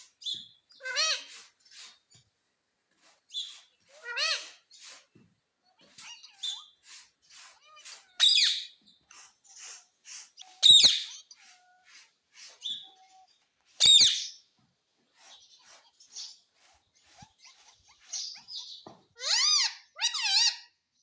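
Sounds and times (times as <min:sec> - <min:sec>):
parrot shrill calls: 0:00.8 - 0:01.3, 0:07.7 - 0:08.8, 0:10.5 - 0:11.8, 0:17.4 - 0:20.8.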